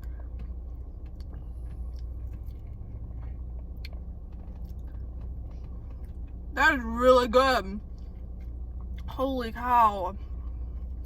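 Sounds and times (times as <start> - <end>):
person chewing ice cream: 0.0 - 6.5, 10.2 - 11.0
steady low hum: 0.0 - 11.0.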